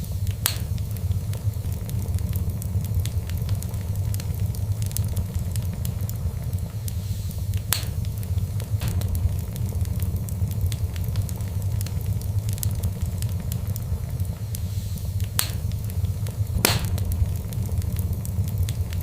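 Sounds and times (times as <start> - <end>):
sharp cracks of fire: 0.0 - 19.0
steady low rumble: 0.0 - 19.0
wood fire crackling: 0.0 - 19.0.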